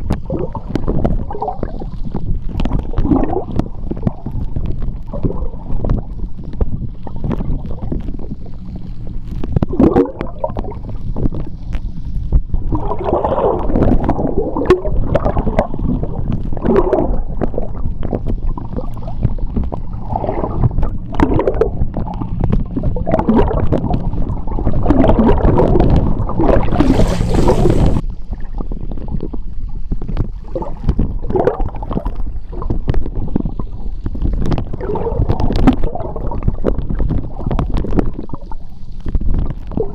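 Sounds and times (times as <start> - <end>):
gurgling bubbles: 0.0 - 28.5, 29.1 - 38.6
underwater churning rumble: 0.0 - 39.9
brief hiss: 26.6 - 28.0.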